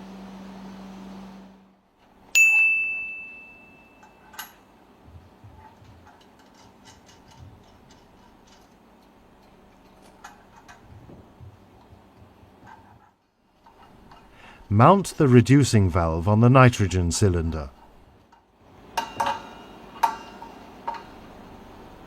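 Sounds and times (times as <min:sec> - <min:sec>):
machinery hum: 0:00.0 - 0:22.0
ringing metallic strike: 0:02.3 - 0:04.6.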